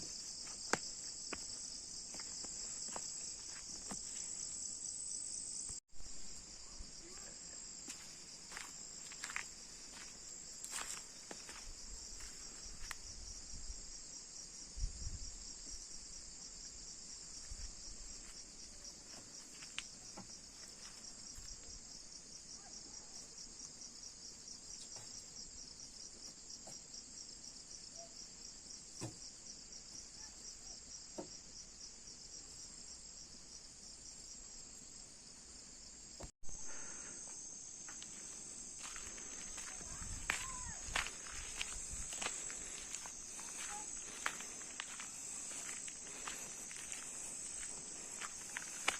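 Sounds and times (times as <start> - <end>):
pulsing insect chorus: 0.0 - 48.9.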